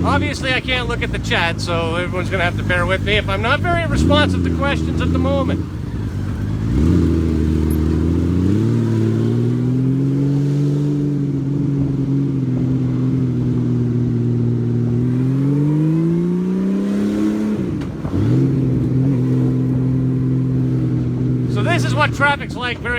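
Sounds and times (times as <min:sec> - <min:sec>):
motorcycle engine revving: 0:00.0 - 0:22.9.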